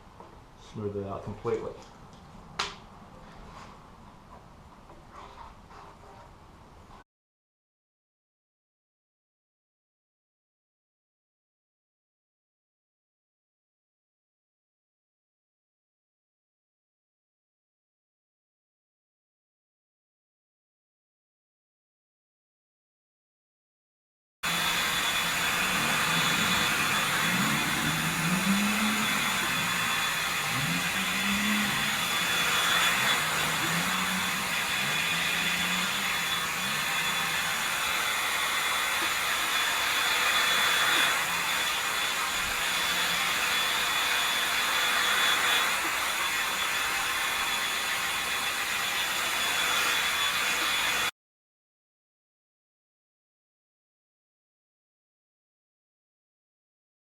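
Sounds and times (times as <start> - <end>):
faint high whine: 24.5 - 45.2
rushing machine hiss: 24.5 - 51.1.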